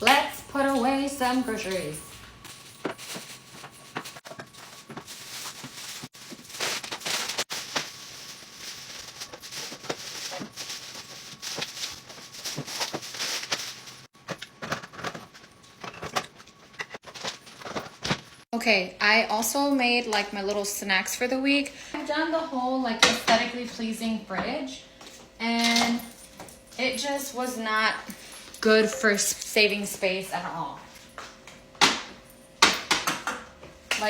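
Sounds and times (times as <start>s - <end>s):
packaging rustling: 2.4s - 15.4s.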